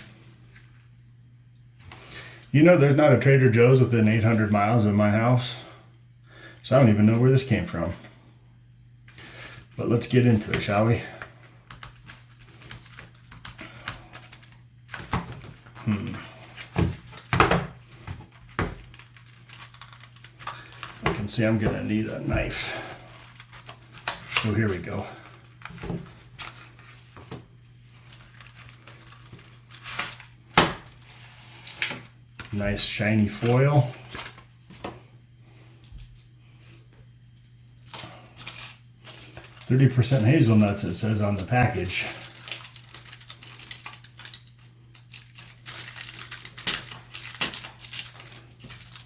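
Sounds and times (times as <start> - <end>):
foil wrapper crinkling: 9.4 - 34.5, 37.4 - 49.0.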